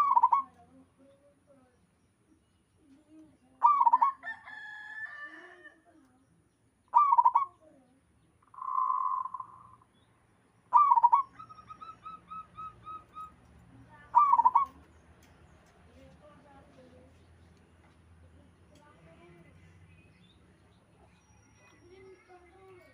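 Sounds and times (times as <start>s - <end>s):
dove cooing: 0.0s - 0.6s, 3.6s - 4.2s, 6.9s - 7.6s, 10.7s - 13.4s, 14.0s - 14.9s.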